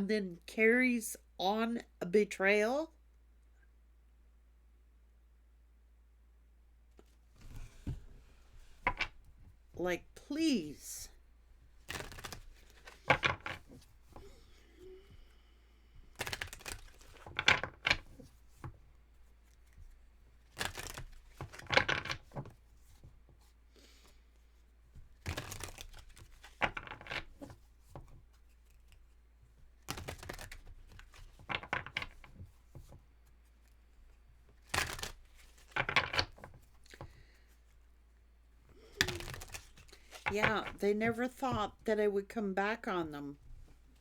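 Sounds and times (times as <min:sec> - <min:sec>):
cards being shuffled: 0:07.0 - 0:09.3, 0:11.7 - 0:15.2, 0:16.0 - 0:37.8, 0:38.7 - 0:41.8.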